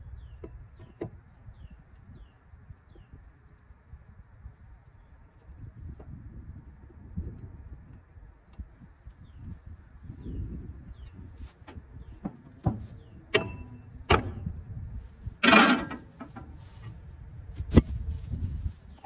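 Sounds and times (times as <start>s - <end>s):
metal clatter: 11.7s - 14.5s, 15.4s - 16.8s
metal knocks and clanks: 11.7s - 14.6s, 15.4s - 16.6s.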